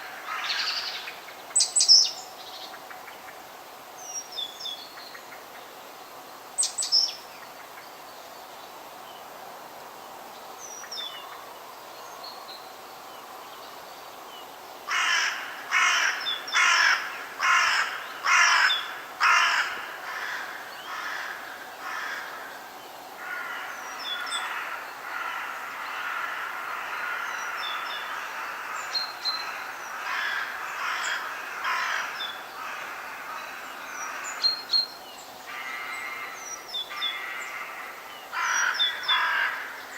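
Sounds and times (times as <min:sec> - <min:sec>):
harsh caw-like bird calls: 0:00.0 - 0:01.2, 0:14.9 - 0:39.9
background hiss: 0:00.0 - 0:39.9.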